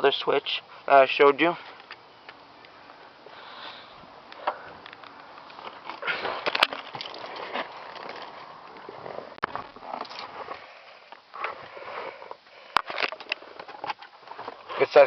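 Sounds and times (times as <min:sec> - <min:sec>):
sniffing and breathing: 0:03.2 - 0:04.8.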